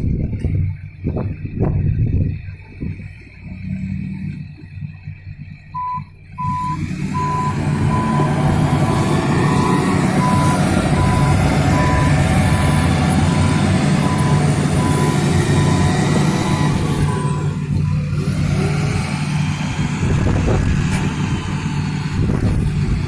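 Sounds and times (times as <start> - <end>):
truck engine running: 0.0 - 23.0
truck reversing alarm beeping: 5.6 - 19.9.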